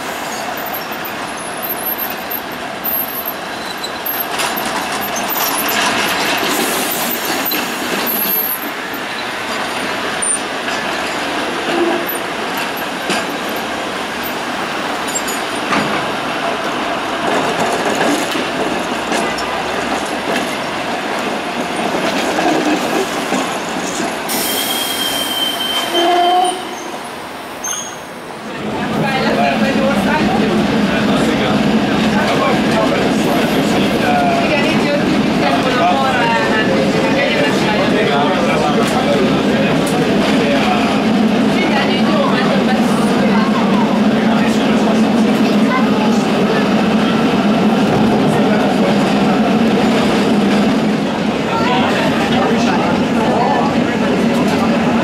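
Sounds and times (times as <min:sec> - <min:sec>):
tram rolling and rattling on rails: 0:00.0 - 0:55.0
wheel squeal: 0:00.2 - 0:04.3, 0:24.3 - 0:27.0, 0:27.6 - 0:28.1
thin high squeal: 0:27.6 - 0:28.1.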